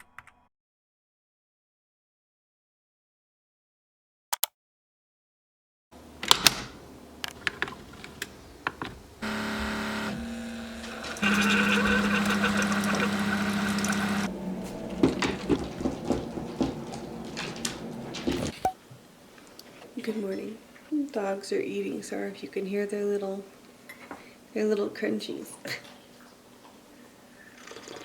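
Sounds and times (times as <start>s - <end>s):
small appliance motor humming: 7.8s - 14.3s.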